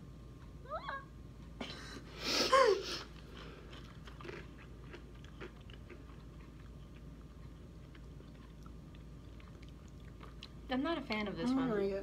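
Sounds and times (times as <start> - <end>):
faint chewing crunches: 3.0 - 10.7.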